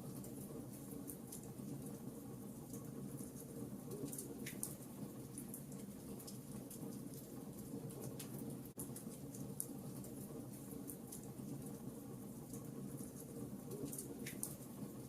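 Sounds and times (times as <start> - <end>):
fire crackling and popping: 2.7 - 11.8, 12.4 - 14.8.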